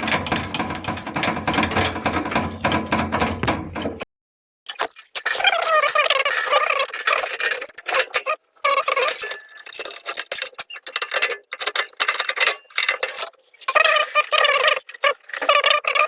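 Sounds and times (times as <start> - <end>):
metal clicks and clinks: 5.2 - 16.0.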